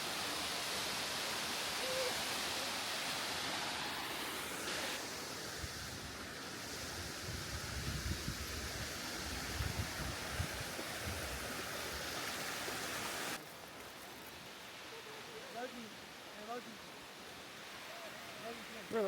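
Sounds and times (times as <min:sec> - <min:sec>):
falling water rushing: 0:00.0 - 0:19.0
wind buffeting on microphone: 0:07.2 - 0:11.4.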